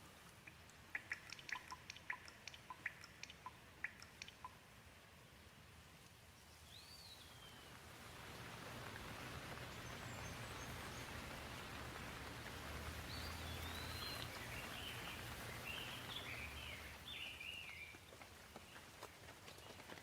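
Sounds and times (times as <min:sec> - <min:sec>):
gentle rain falling: 0:00.0 - 0:20.0
bird chirping: 0:00.4 - 0:04.6, 0:06.4 - 0:07.7, 0:13.1 - 0:18.1.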